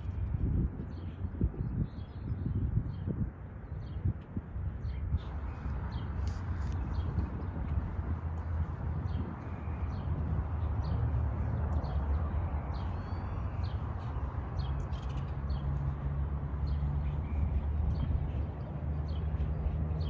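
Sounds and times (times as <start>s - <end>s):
steady low rumble: 4.1s - 20.0s
small birds chirping: 4.8s - 20.0s.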